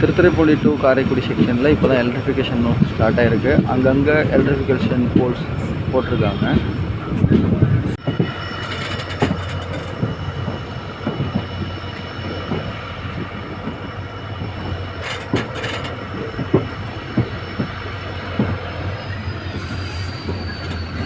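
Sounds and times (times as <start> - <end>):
train rumble: 0.0 - 21.0
wheels knocking over rails: 8.0 - 18.9.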